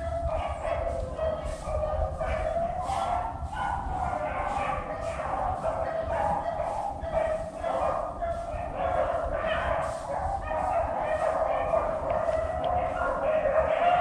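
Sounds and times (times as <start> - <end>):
dogs baying: 0.0 - 14.0.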